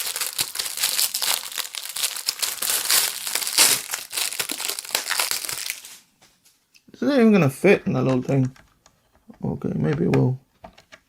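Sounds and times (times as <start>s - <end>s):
packaging crinkling: 0.0s - 6.1s.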